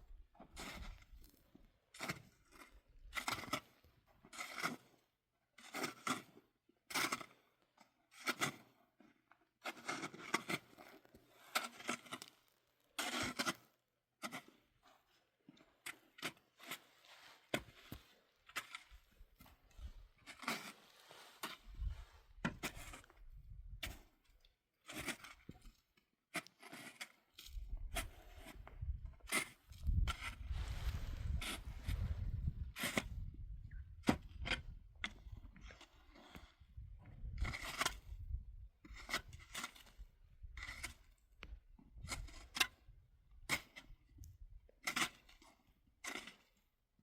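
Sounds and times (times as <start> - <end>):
snow shovel scraping snow: 16.3 - 23.1, 27.9 - 33.3.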